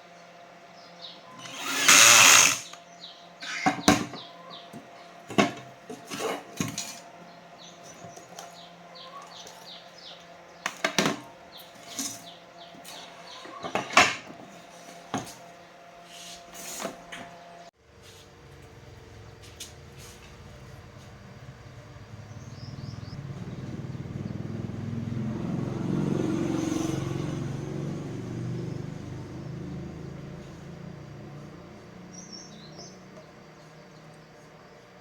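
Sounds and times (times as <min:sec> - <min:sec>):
power tool burst: 0:01.4 - 0:02.8.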